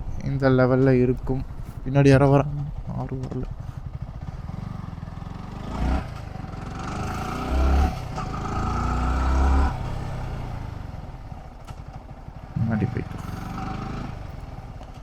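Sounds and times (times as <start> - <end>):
motorcycle engine revving: 2.3 - 15.0.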